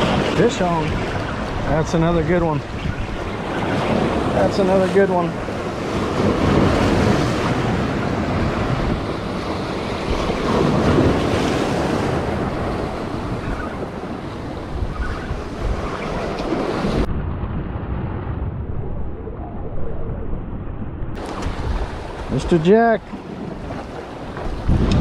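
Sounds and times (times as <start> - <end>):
surf breaking against rocks: 0.0 - 14.7
wind buffeting microphone: 0.0 - 25.0.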